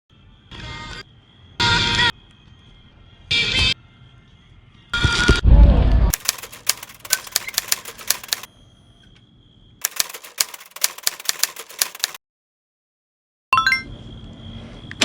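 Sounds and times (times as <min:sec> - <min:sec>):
typewriter keys clacking: 0:06.1 - 0:08.5, 0:09.8 - 0:12.2.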